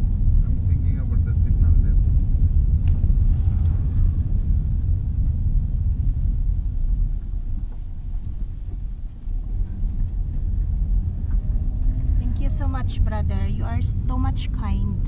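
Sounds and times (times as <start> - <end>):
car interior driving rumble: 0.0 - 15.0.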